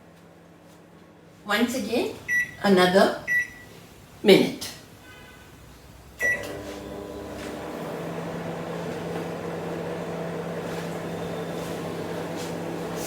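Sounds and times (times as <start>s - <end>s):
microwave beep: 2.3s - 2.6s, 3.2s - 3.7s, 6.2s - 7.4s, 10.9s - 12.4s
microwave humming: 6.2s - 13.0s.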